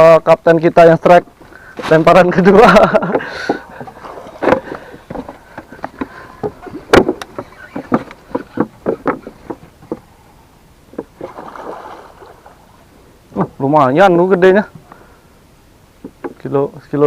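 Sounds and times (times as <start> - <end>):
knocks and taps on boat: 2.9 - 10.1.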